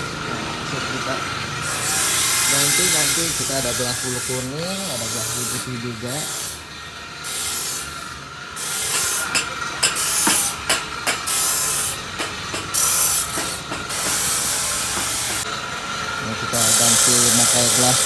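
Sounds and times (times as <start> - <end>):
rasping hissing noise: 1.7 - 6.6, 16.5 - 18.0
sharp clicks and knocks: 12.2 - 14.4.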